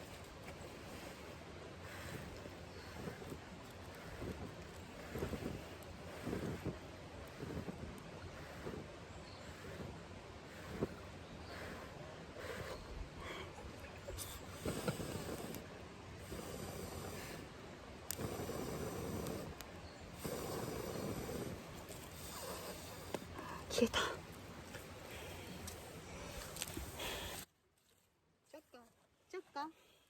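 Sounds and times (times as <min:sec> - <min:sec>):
wind buffeting microphone: 0:00.8 - 0:21.9
person blowing on campfire: 0:00.8 - 0:23.6
fire crackle: 0:14.1 - 0:27.5.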